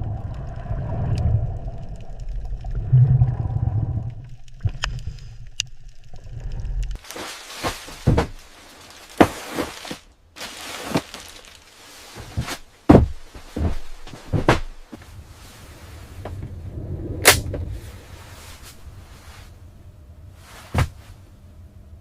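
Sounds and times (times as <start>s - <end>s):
knocks and thuds: 7.6s - 8.4s, 12.3s - 14.7s.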